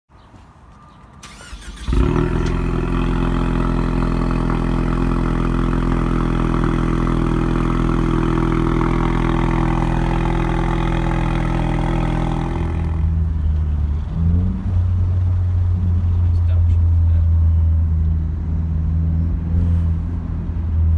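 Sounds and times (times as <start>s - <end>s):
car engine idling: 1.2s - 14.0s
car engine starting: 1.2s - 16.9s.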